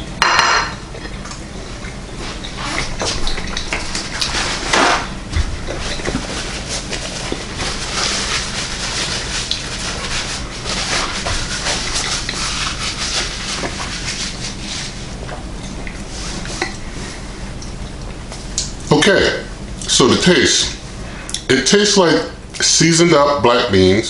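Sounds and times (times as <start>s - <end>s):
paper napkin rustling: 2.2s - 17.4s.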